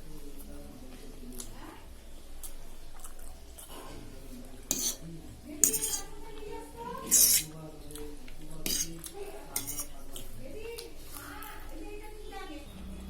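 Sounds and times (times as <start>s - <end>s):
cutlery scraping a plate: 3.6s - 6.2s, 7.0s - 7.6s, 8.6s - 10.3s.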